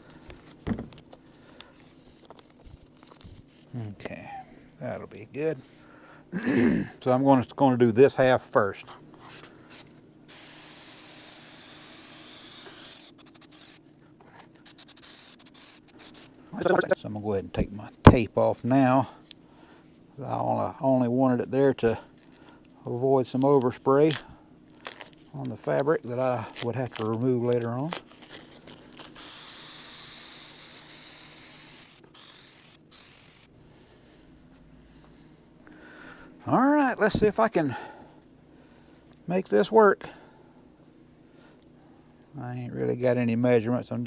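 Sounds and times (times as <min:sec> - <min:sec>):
aerosol spray hissing: 0:09.2 - 0:13.8, 0:14.6 - 0:17.0, 0:29.2 - 0:33.5
scratchy rubbing clicks: 0:12.2 - 0:13.8, 0:14.7 - 0:17.0.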